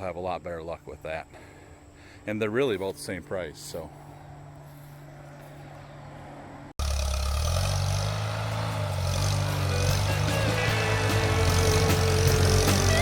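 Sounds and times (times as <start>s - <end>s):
tractor engine running loudly: 6.8s - 13.0s.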